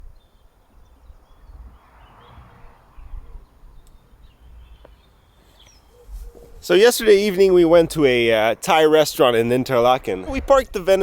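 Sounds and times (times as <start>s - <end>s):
faint bird chirps: 0.0s - 6.7s
low steady rumble: 3.1s - 11.0s.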